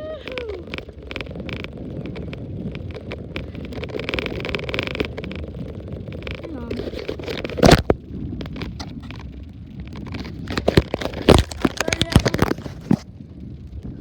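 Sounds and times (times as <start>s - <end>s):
bicycle rumble: 0.0s - 14.0s
knocks and clatters on tablet: 10.0s - 13.0s.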